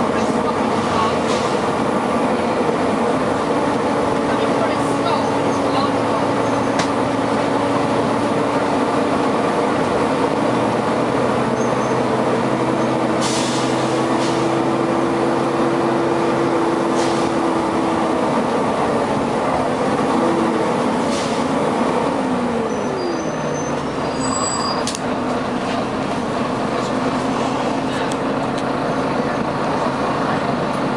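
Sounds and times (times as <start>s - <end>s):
bus engine and cooling fan drone: 0.0s - 30.9s
short air hisses: 13.2s - 14.5s.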